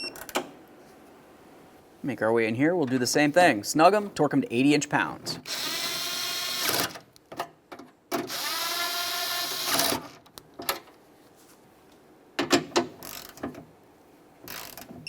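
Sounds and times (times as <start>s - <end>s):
cordless drill running: 5.5s - 6.8s, 8.3s - 10.0s.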